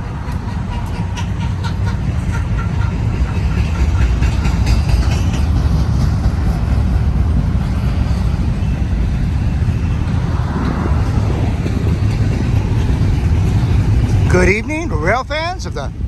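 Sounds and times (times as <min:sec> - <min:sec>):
freight train passing: 0:00.0 - 0:16.0.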